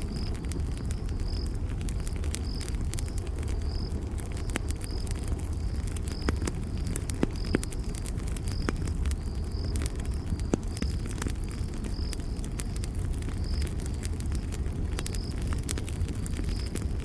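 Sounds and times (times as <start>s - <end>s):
cricket chirping: 0.0s - 16.9s
campfire crackling and popping: 0.0s - 17.0s.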